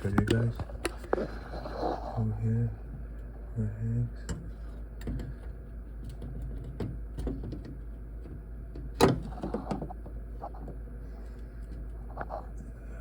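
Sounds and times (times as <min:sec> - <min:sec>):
microwave oven handling clicks: 0:08.8 - 0:09.9.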